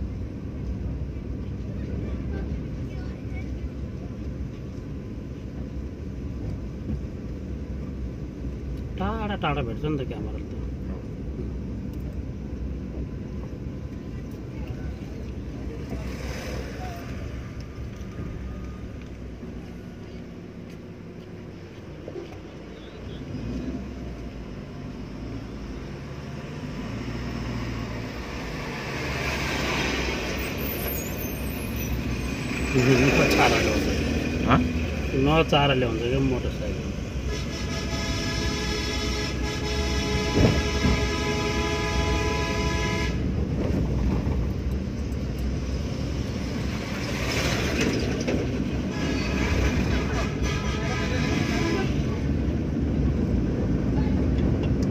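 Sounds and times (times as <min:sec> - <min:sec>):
car engine hum: 0:00.0 - 0:54.9
road hiss: 0:19.4 - 0:43.4
car horn blast: 0:37.3 - 0:43.2, 0:50.0 - 0:52.1.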